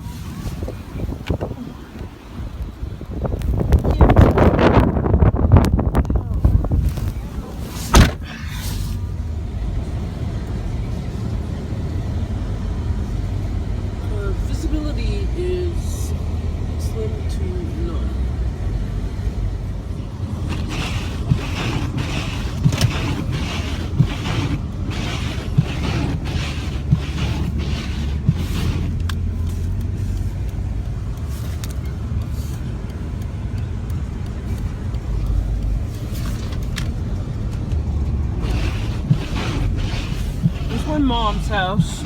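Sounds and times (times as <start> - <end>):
engine and road rumble: 0.0 - 42.0
swishing thump: 7.8 - 8.3.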